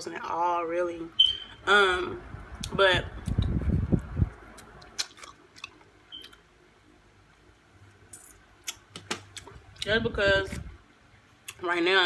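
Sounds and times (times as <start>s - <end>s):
close chewing: 4.5s - 6.4s.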